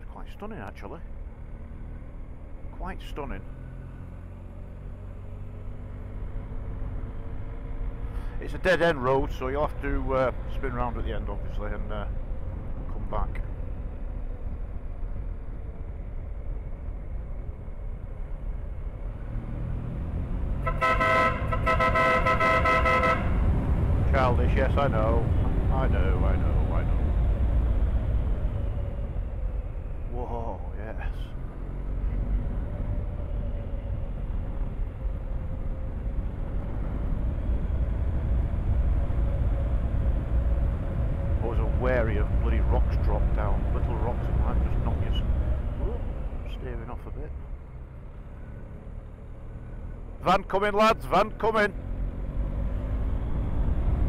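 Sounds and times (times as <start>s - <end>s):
motorcycle engine hum: 0.0s - 50.3s
motorcycle horn tooting: 20.6s - 23.4s.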